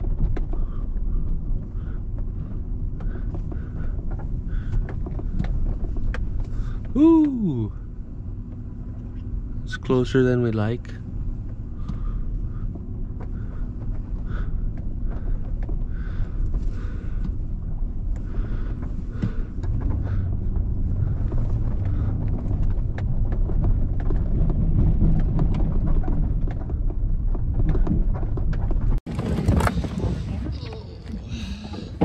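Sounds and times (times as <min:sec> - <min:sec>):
truck engine and road rumble: 0:00.0 - 0:32.0
small rattles and knocks: 0:11.3 - 0:32.0.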